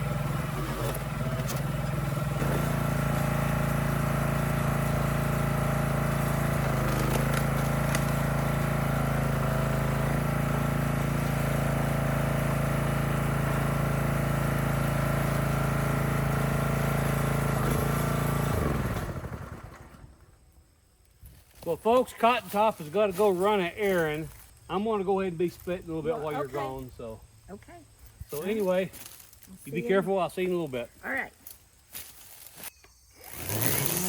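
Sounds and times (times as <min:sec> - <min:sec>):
engine running steadily: 0:00.0 - 0:20.2.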